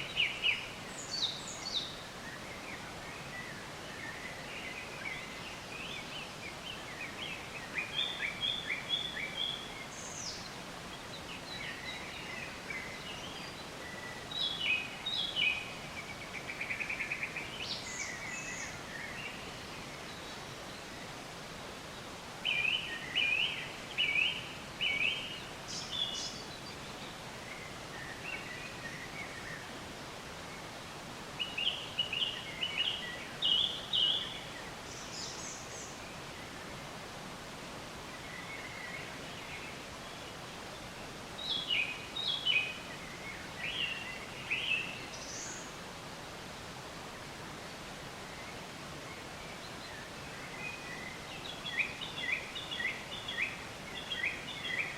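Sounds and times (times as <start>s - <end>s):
outdoor ambient hiss: 0.0s - 54.9s
songbirds chirping: 0.0s - 54.9s.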